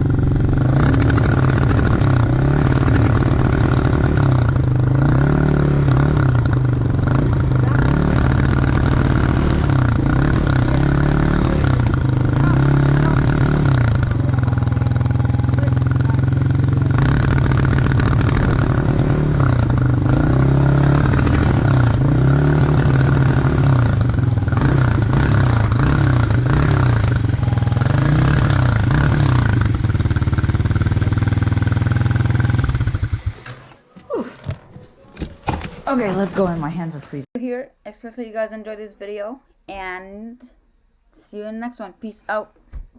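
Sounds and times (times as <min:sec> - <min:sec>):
snowblower engine running: 0:00.0 - 0:33.8.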